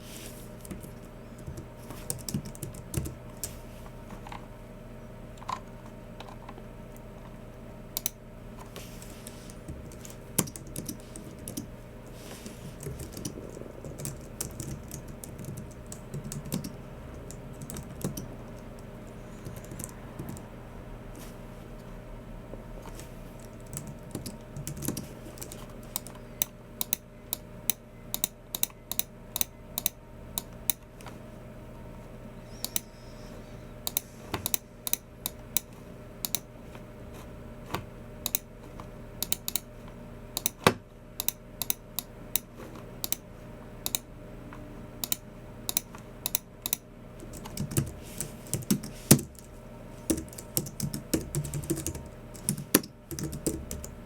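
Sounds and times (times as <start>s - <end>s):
keyboard typing: 0.6s - 3.5s, 9.5s - 11.7s, 12.7s - 20.5s, 23.4s - 27.5s, 45.0s - 49.5s, 50.1s - 54.0s.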